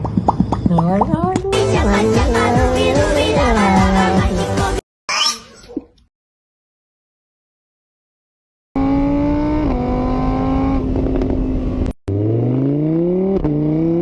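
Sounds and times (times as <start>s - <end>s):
car engine revving: 8.8s - 14.0s.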